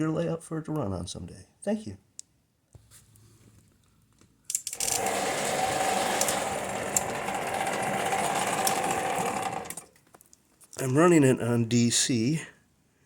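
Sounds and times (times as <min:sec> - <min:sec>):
model locomotive motor whirr: 0:04.5 - 0:09.9.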